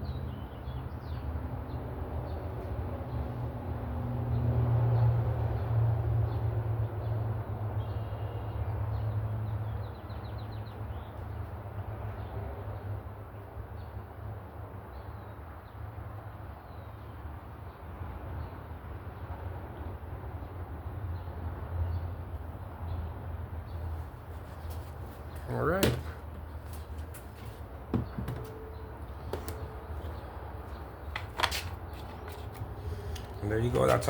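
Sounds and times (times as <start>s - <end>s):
birds chirping: 22.9s - 34.0s.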